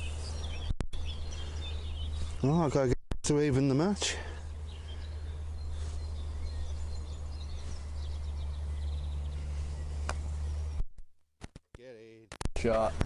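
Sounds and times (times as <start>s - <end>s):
birds chirping: 0.0s - 10.8s
low rumble: 4.6s - 10.8s.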